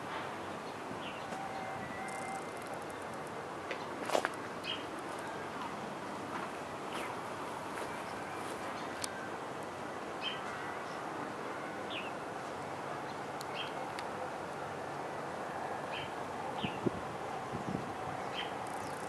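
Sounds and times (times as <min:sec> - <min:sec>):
outdoor background hiss: 0:00.0 - 0:19.0
small bird chirping: 0:18.4 - 0:19.0.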